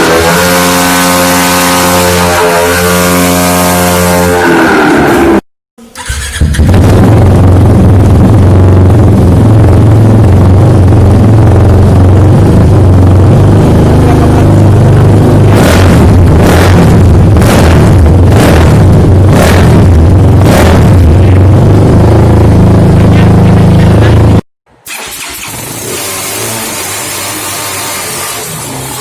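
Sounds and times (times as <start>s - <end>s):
engine running loudly: 0.0s - 5.4s, 6.0s - 29.0s
sharp engine bursts: 5.8s - 8.1s, 24.8s - 29.0s.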